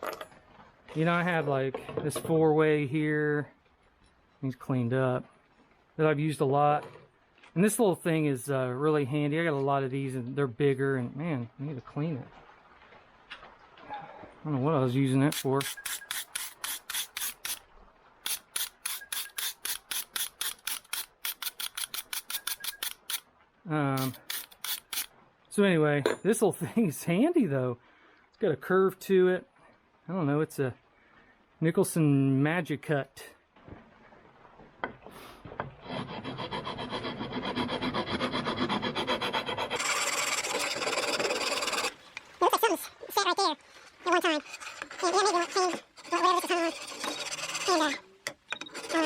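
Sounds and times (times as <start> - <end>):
hand file rasping wood: 15.6 - 17.6, 35.8 - 41.9, 44.1 - 48.0, 48.7 - 49.0.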